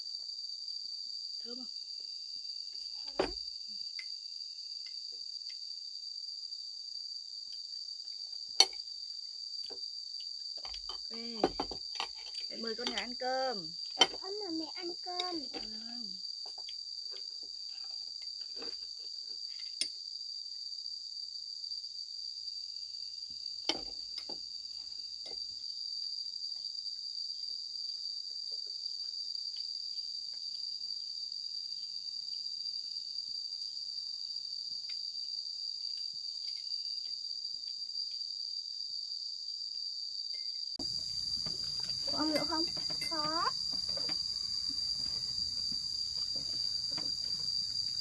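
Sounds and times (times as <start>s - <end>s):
crickets chirping: 0.0s - 48.0s
light clicks and knocks: 40.8s - 48.0s.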